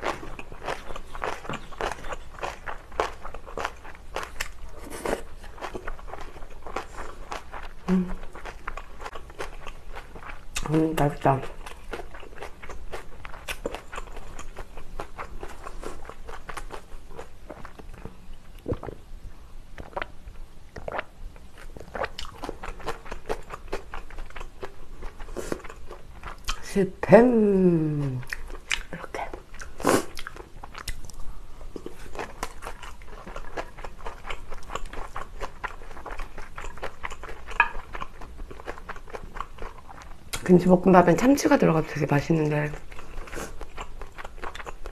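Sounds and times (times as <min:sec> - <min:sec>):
chewing with wet mouth clicks: 0:00.0 - 0:10.7, 0:11.4 - 0:19.0, 0:20.7 - 0:26.6, 0:28.2 - 0:40.5, 0:42.8 - 0:44.9
wet chewing mouth clicks: 0:20.7 - 0:21.1, 0:21.7 - 0:26.6, 0:28.2 - 0:31.2.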